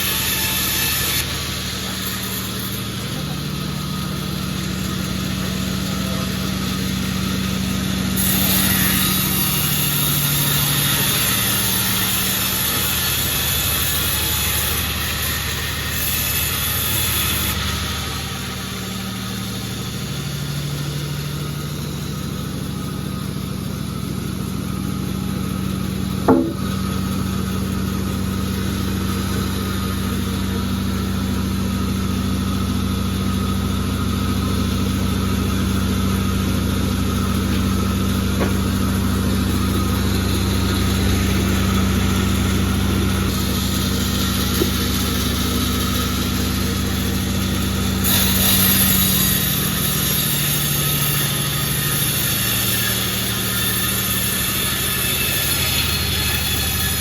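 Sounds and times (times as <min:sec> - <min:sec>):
sawmill machine humming: 0:00.0 - 0:57.0
sharp knock: 0:26.3 - 0:26.8.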